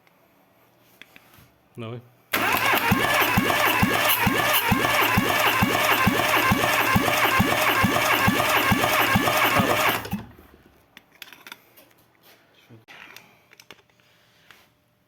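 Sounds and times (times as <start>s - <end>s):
engine cranking on starter motor: 2.3s - 10.8s.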